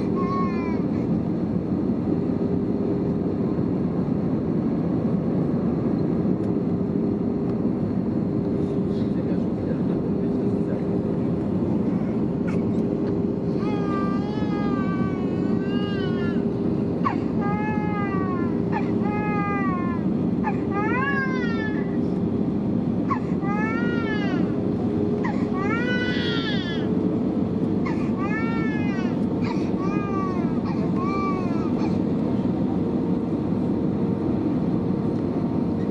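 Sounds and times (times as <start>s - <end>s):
airplane cabin rumble and hum: 0.0s - 35.9s
infant crying: 13.4s - 22.0s, 23.1s - 24.6s, 25.2s - 27.0s, 27.8s - 32.1s.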